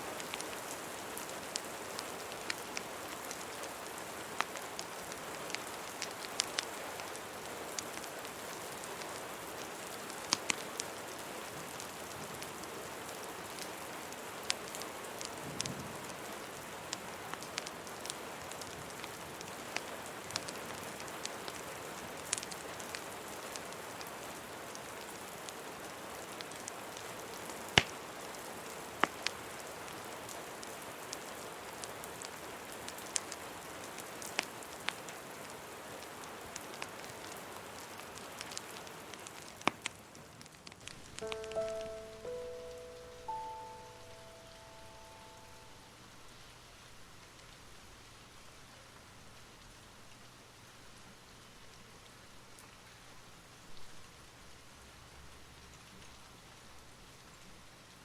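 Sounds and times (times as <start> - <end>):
steady rain hiss: 0.0 - 58.0
wood fire crackling: 0.1 - 12.7, 16.9 - 42.4.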